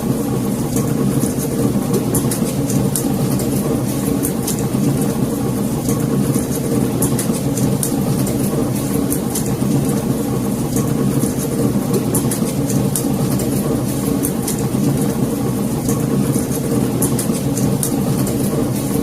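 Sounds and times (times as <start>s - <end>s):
logs crackling and popping: 0.8s - 15.2s.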